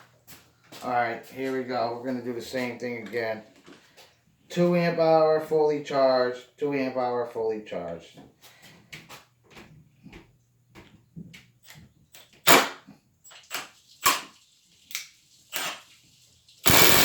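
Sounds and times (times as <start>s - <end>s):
impact driver hammering screw: 16.6s - 17.0s
tools and screws clicking: 16.7s - 17.0s.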